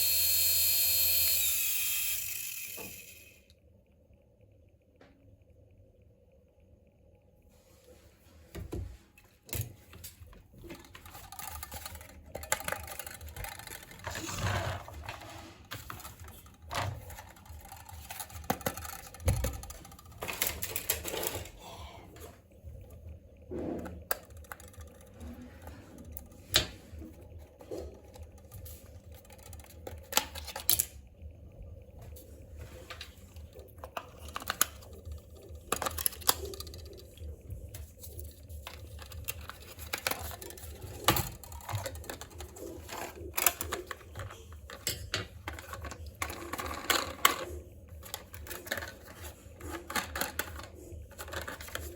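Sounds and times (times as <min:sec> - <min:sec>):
plastic packaging rustling: 0:10.1 - 0:21.6, 0:37.9 - 0:51.9.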